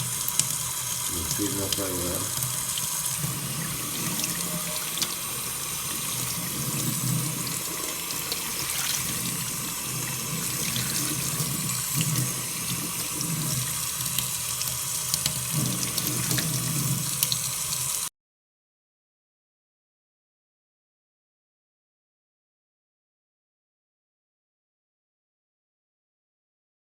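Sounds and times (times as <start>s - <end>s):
tap water splashing over shoe: 5.9s - 17.4s.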